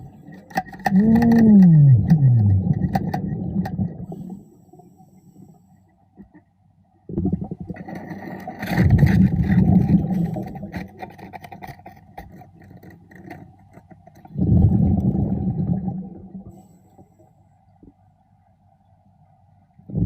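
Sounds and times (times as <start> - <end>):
exhaled bubbles rumbling underwater: 0.0 - 4.4, 7.1 - 11.3, 14.2 - 16.6
small clicks and crackles: 0.0 - 4.9, 7.7 - 14.4.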